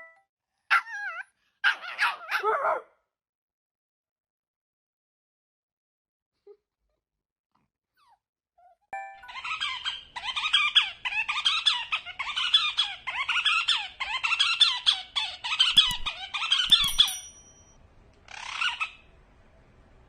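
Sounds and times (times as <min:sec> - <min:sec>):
high-pitched squeaky animal calls: 0:09.2 - 0:17.2, 0:18.3 - 0:19.0.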